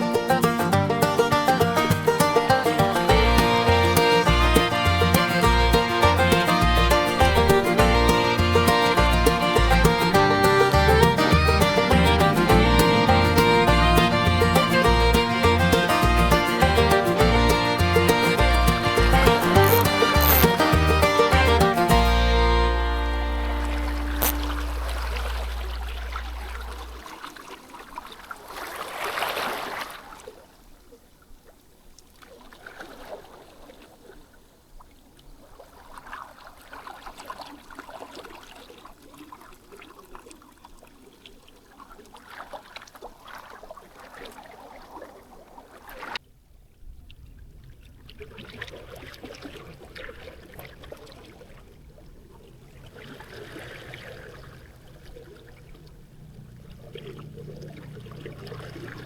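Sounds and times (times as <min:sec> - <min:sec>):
small waves lapping at shore: 0:00.0 - 0:59.0
low rumble: 0:04.3 - 0:19.4, 0:20.8 - 0:27.0.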